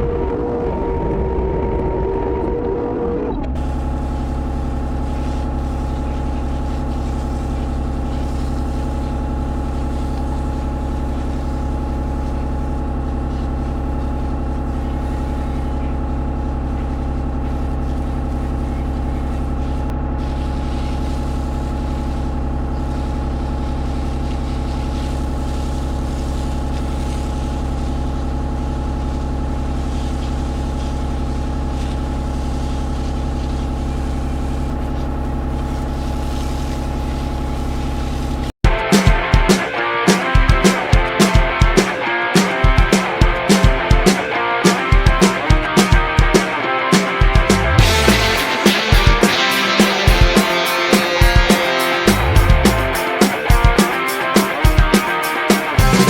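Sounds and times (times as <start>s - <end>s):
diesel engine running: 47.2s - 49.2s, 52.0s - 53.0s.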